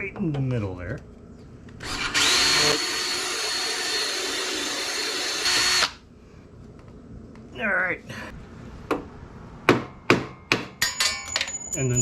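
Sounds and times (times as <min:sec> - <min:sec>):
power drill whining into steel: 0:01.8 - 0:06.0.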